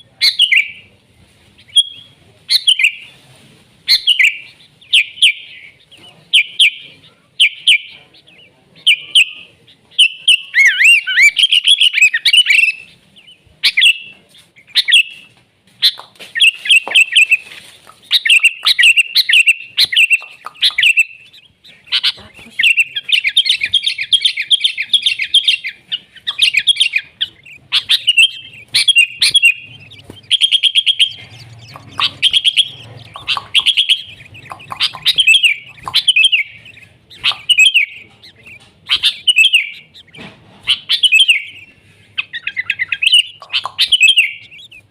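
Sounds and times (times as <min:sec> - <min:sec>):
bird singing bubbly chirps: 0:18.1 - 0:41.7, 0:42.3 - 0:44.9.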